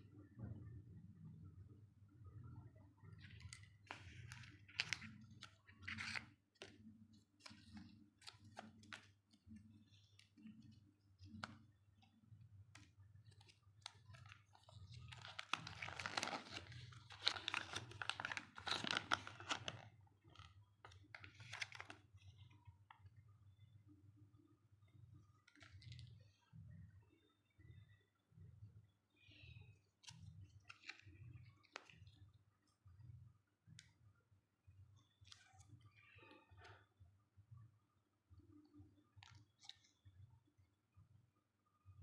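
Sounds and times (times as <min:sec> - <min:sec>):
wrapper crinkling: 0:13.4 - 0:19.8.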